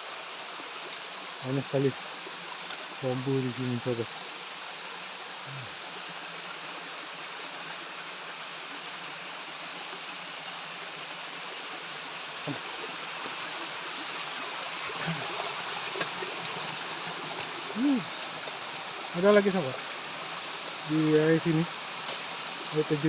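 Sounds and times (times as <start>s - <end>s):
waterfall rushing: 12.2s - 23.0s.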